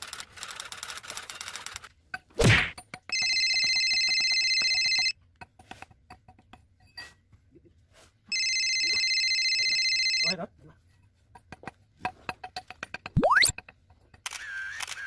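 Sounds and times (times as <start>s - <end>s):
phone ringing: 3.1s - 5.2s, 8.3s - 10.4s.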